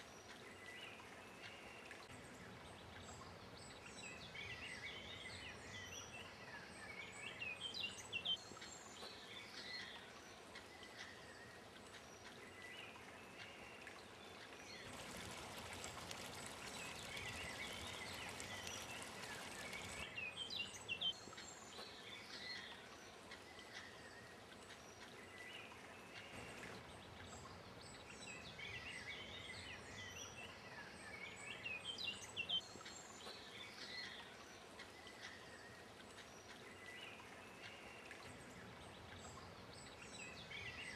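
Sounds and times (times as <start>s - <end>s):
small birds chirping: 0.0s - 40.9s
steady rushing noise: 14.8s - 20.1s.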